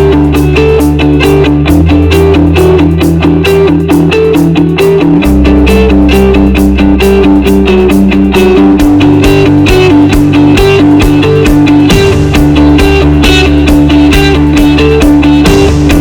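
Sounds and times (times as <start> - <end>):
bass line: 0.0 - 16.0
guitar instrumental with beat: 0.0 - 16.0.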